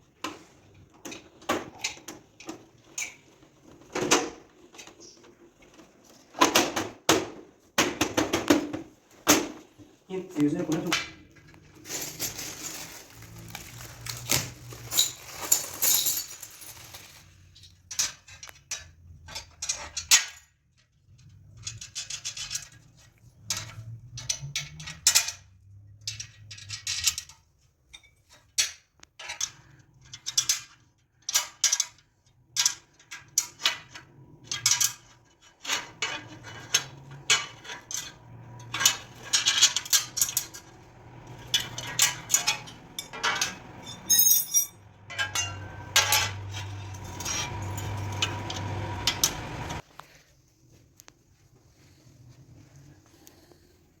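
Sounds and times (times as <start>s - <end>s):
metallic clinks of tools: 41.6s - 48.1s.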